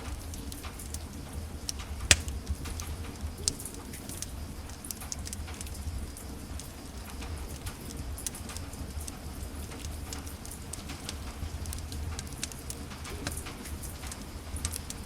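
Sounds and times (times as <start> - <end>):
wood fire crackling: 0.2 - 15.0
fire pop: 2.1 - 2.7.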